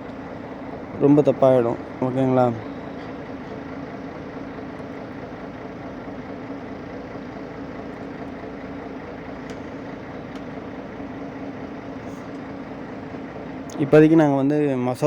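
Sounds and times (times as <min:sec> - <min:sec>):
road noise: 0:00.0 - 0:15.0
truck engine drone: 0:00.0 - 0:15.0.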